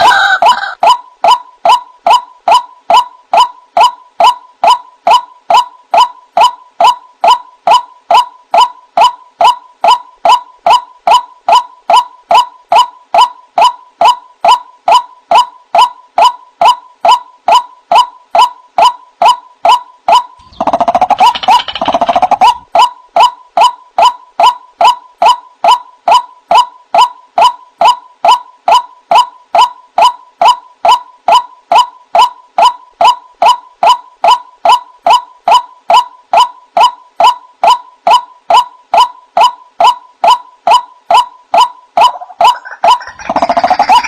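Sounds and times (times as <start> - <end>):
waterhen calling: 42.0 - 44.0.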